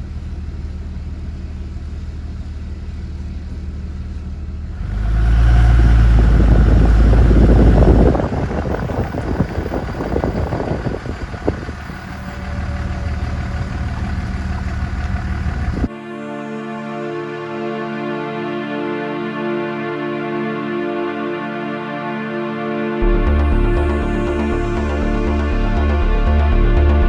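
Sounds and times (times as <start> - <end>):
vehicle engine idling and revving: 0.0 - 15.9, 23.0 - 27.0.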